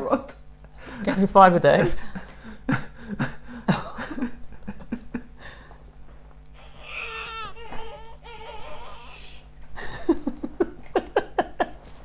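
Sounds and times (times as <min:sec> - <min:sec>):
baby fussing and crying: 0:06.6 - 0:09.6.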